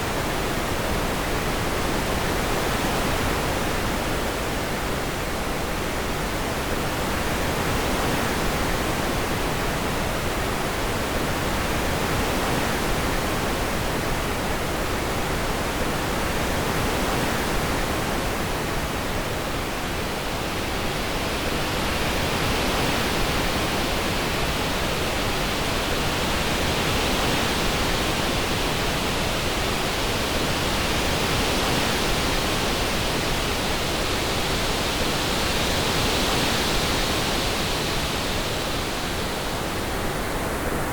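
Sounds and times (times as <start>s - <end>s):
steady wind-like hiss: 0.0s - 40.9s.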